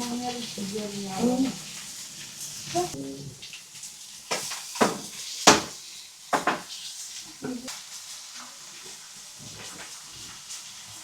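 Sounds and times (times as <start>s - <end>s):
faint sizzle: 0.0s - 11.0s
kitchen utensils knocking: 4.3s - 6.7s.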